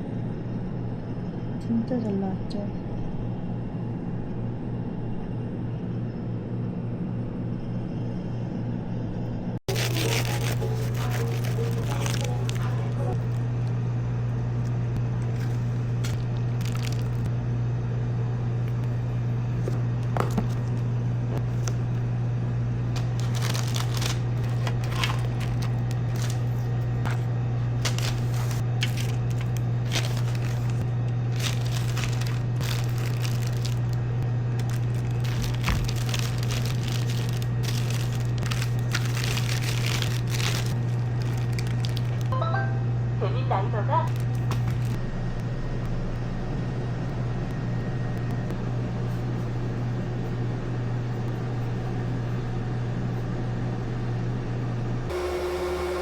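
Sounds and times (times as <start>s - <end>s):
steady low hum: 0.0s - 56.0s
light crinkling: 9.7s - 13.4s, 23.0s - 27.2s, 27.8s - 34.0s, 34.6s - 42.3s.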